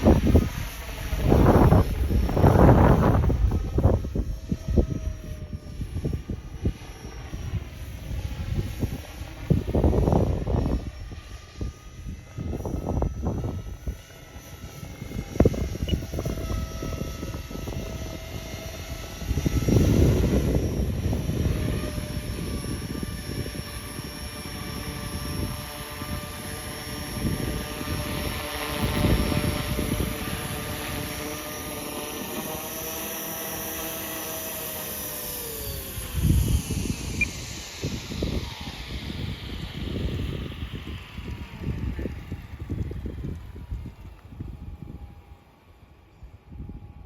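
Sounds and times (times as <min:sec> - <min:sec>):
rc helicopter rotor whine: 0:00.0 - 0:47.0
wind buffeting microphone: 0:00.0 - 0:47.0.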